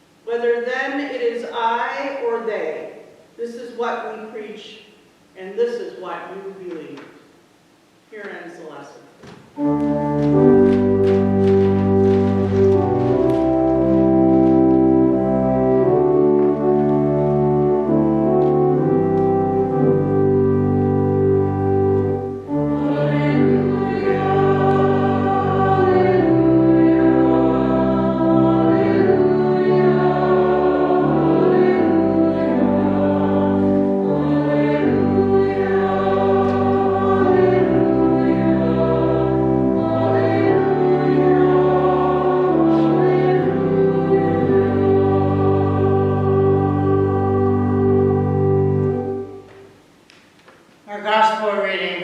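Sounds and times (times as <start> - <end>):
organ accompaniment: 9.2 - 50.1
choir singing a hymn: 9.6 - 49.5.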